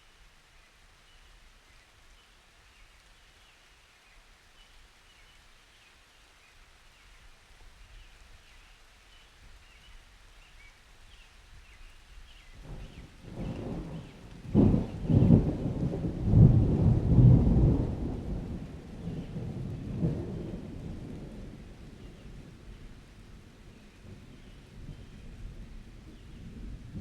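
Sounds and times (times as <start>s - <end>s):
rain hiss: 0.0s - 27.0s
thunder rumble: 12.6s - 27.0s.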